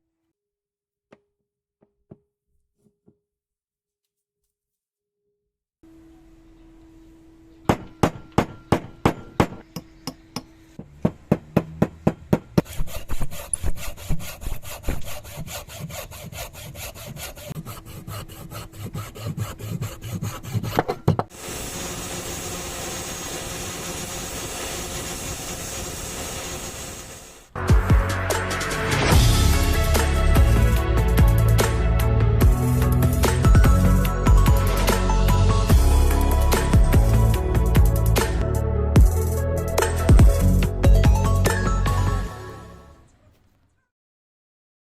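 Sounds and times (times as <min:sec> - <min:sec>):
sharp strikes on wood: 0:07.7 - 0:13.1
scraping strokes on wood: 0:12.6 - 0:21.4.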